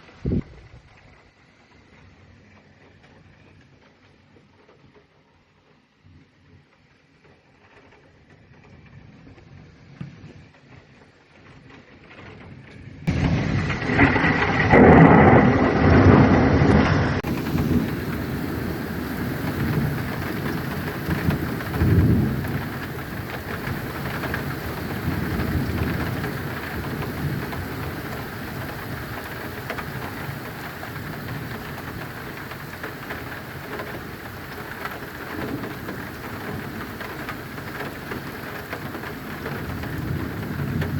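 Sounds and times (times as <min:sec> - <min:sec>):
heavy rain hissing: 0:13.1 - 0:40.9
thunder rumbling: 0:13.1 - 0:40.9.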